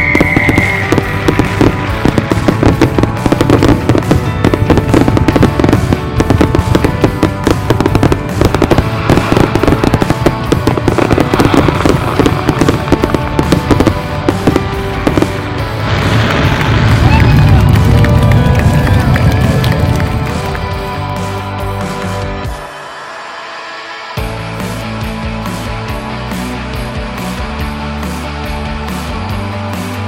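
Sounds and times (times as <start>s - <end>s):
fireworks popping and crackling: 0.0s - 22.7s
music playing: 0.0s - 30.0s.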